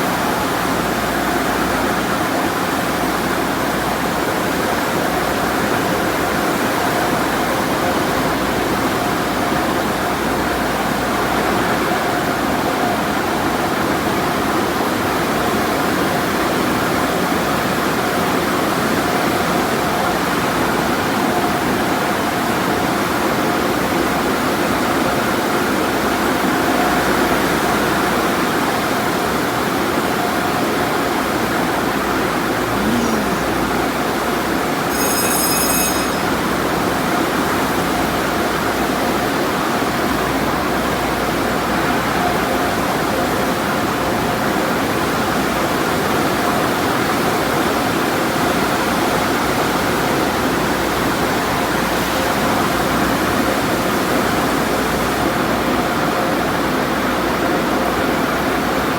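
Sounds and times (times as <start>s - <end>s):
short high-pitched tone: 32.7s - 33.7s, 34.9s - 36.9s.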